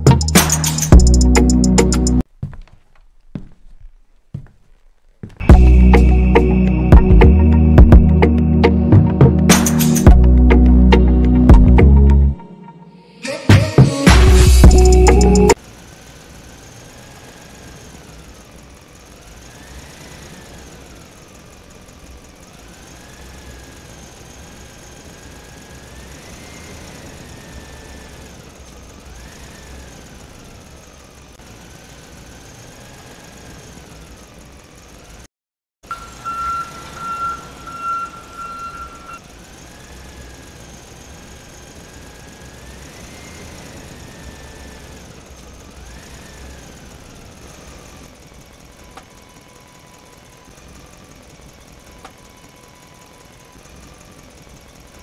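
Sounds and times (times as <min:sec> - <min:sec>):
tractor engine running: 0:00.0 - 0:12.4, 0:14.1 - 0:55.0
high beep-like tone: 0:35.9 - 0:39.2.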